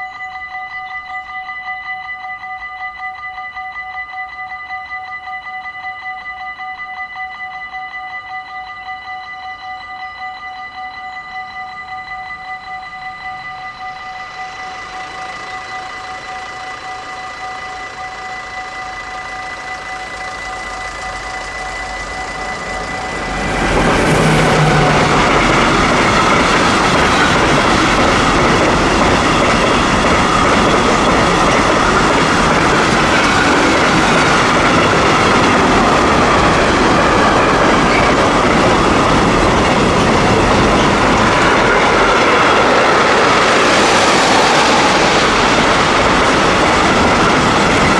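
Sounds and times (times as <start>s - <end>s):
level crossing warning bell: 0.0s - 47.9s
train rumble: 12.9s - 47.9s.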